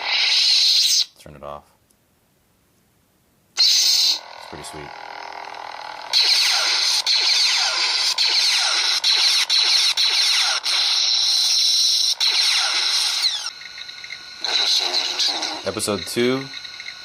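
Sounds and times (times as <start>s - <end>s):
lightsaber buzzing hum: 0.0s - 1.2s, 3.6s - 17.0s.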